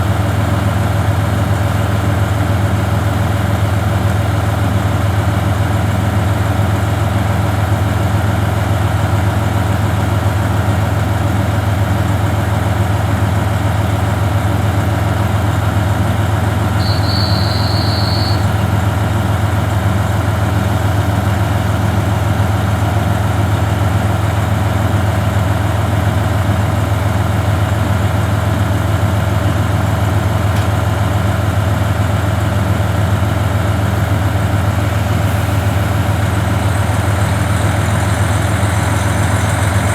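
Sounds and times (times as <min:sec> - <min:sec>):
diesel railcar engine idling: 0:00.0 - 0:39.9
brief high tone: 0:16.8 - 0:18.6.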